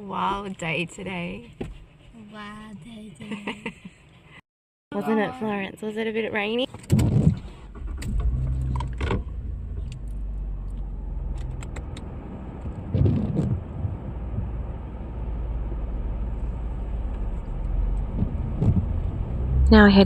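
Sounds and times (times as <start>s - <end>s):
car engine rumble inside cabin: 7.0s - 20.0s.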